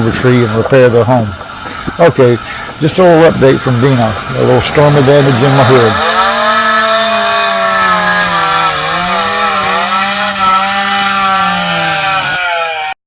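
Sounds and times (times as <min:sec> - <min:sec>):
chainsaw engine at high revs: 0:00.9 - 0:12.9.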